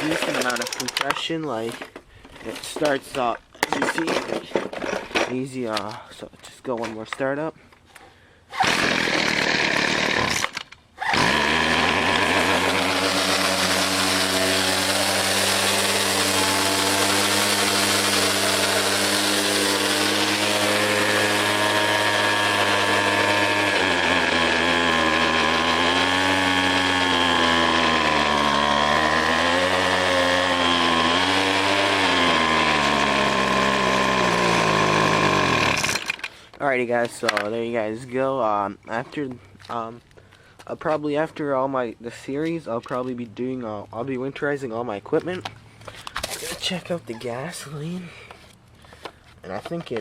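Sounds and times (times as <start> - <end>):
string trimmer engine running: 0.0 - 1.2, 8.6 - 36.4.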